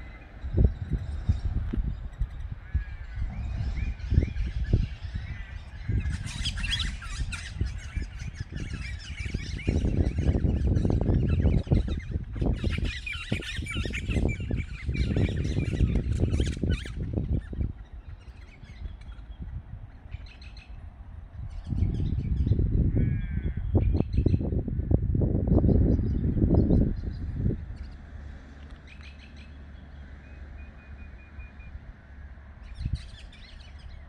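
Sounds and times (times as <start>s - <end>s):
birds chirping and twittering: 0.0s - 34.0s.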